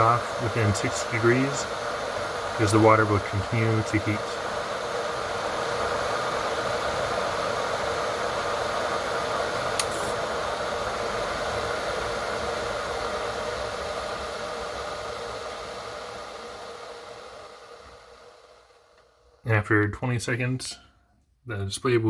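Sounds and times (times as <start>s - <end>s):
kettle water heating hiss: 0.0s - 20.8s
kettle click: 9.7s - 10.2s.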